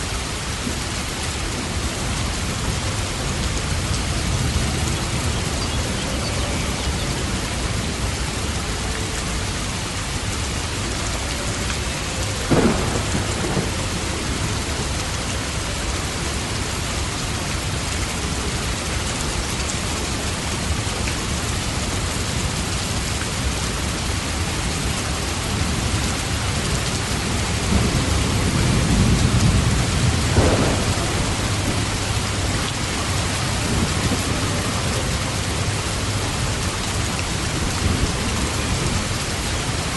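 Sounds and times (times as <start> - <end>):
steady rain falling: 0.0 - 39.9
low thunder rumble: 12.2 - 16.5, 27.2 - 39.9
thunder crack: 12.5 - 14.0, 27.7 - 34.9.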